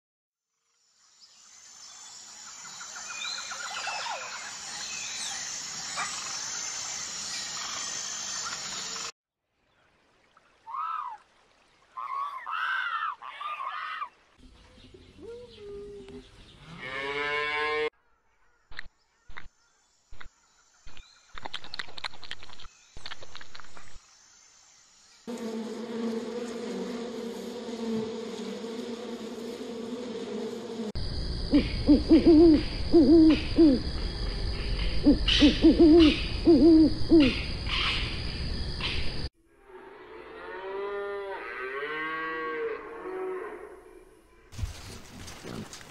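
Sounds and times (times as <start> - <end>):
high wavering calls: 31.5 - 33.9, 34.6 - 38.1
owl hooting: 31.5 - 33.9, 34.9 - 38.1.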